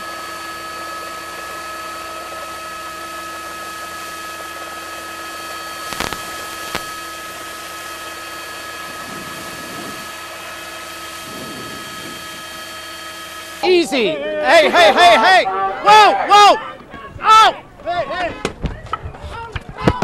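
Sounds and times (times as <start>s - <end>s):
helicopter cabin noise: 0.3s - 19.5s
short clicks: 5.9s - 7.0s.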